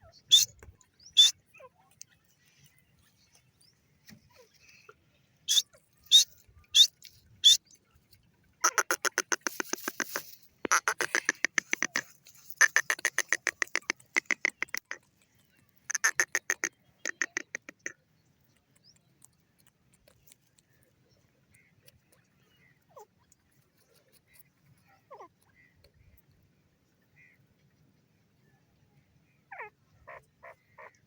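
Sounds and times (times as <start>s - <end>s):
francolin calling: 0.0s - 1.4s, 5.5s - 7.6s.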